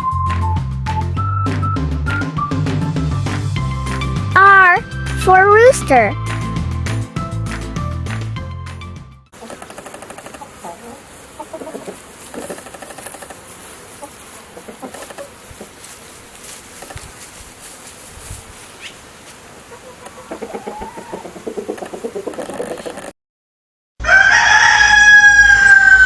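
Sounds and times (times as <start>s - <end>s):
chickens clucking: 9.4s - 23.1s
rooster crowing: 20.0s - 21.8s, 24.0s - 26.0s.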